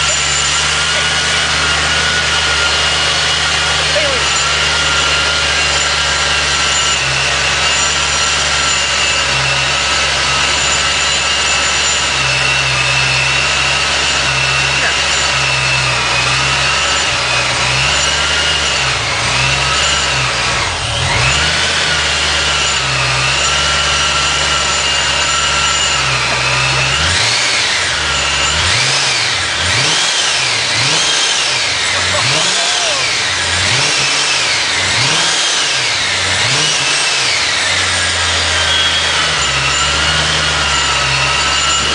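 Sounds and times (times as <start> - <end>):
car engine idling and revving: 0.0 - 41.9.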